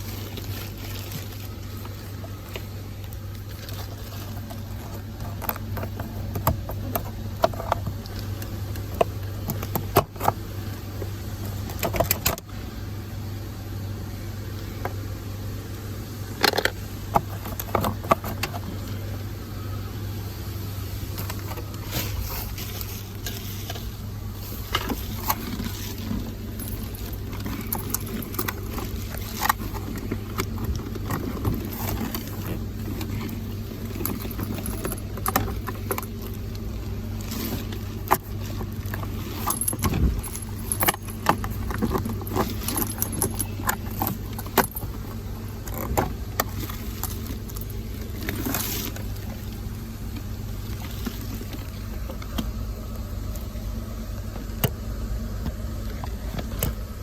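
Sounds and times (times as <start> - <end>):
steady low hum: 0.0 - 57.0
keys and metal parts jangling: 25.0 - 36.4, 37.2 - 48.8.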